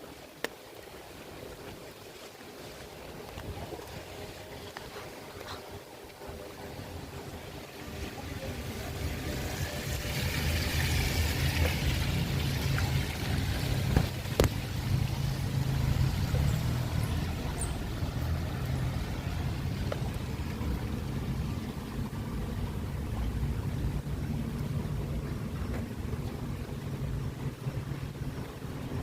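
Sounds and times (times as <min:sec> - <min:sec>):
wind rumble on microphone: 0:01.1 - 0:29.0
vehicle on wet road: 0:06.5 - 0:25.8.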